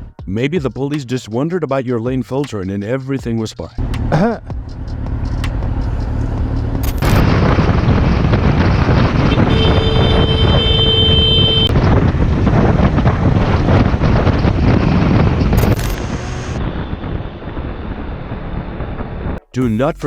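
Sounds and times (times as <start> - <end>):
low engine hum: 3.8 - 20.0
wind noise on microphone: 4.5 - 19.4
steady high tone: 19.5 - 20.0.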